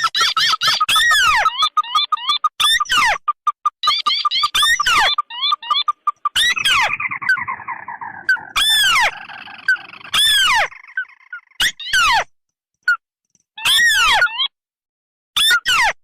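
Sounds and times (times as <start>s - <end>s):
crake calls: 3.8s - 12.1s.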